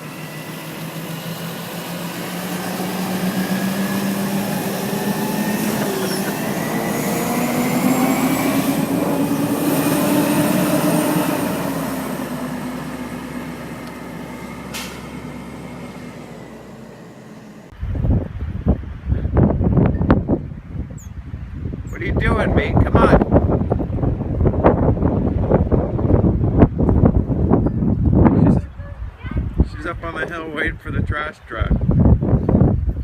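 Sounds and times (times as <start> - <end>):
garbage truck driving by: 0.0 - 19.1
wind buffeting microphone: 0.4 - 14.6, 17.7 - 33.0.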